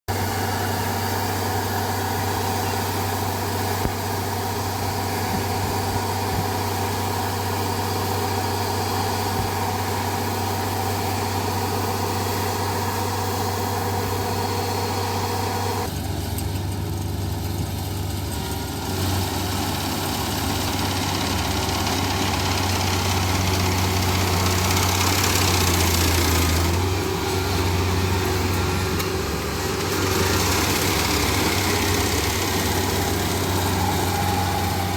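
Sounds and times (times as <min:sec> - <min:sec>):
harvester engine humming: 0:00.1 - 0:34.9
rushing noise: 0:23.4 - 0:34.9.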